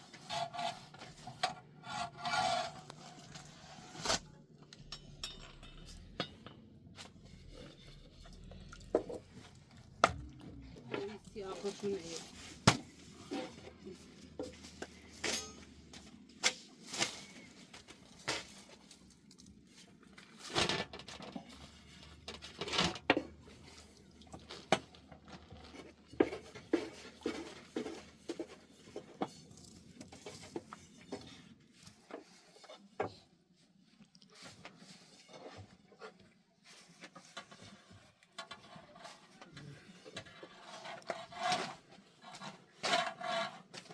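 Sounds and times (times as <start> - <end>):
cookware and utensils clattering: 4.7 - 6.7, 13.2 - 15.8.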